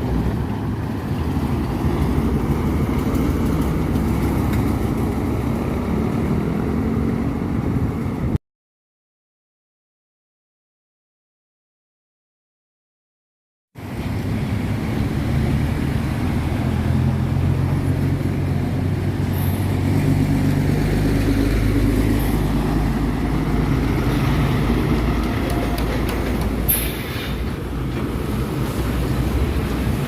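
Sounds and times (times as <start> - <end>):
road traffic: 0.0 - 8.4, 13.8 - 30.0
truck diesel engine running: 13.8 - 29.9
short hiss: 26.7 - 27.5.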